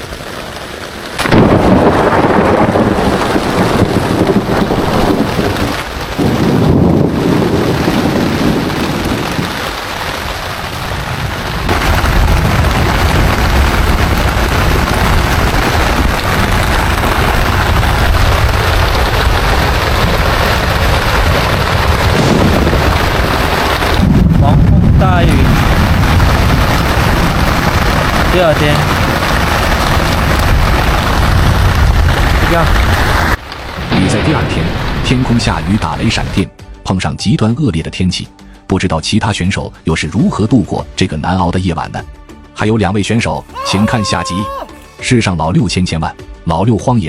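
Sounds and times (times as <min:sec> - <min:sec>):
heavy rain: 0:00.0 - 0:36.5, 0:43.2 - 0:45.2
wind gusts on microphone: 0:01.2 - 0:36.4.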